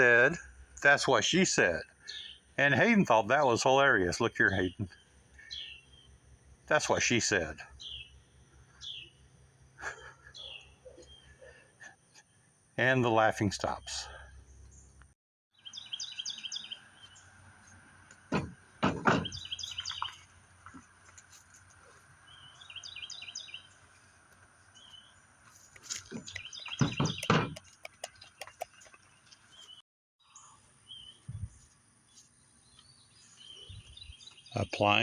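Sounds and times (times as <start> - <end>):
songbird singing: 0.0 - 35.0
knocks and handling sounds: 25.5 - 29.7.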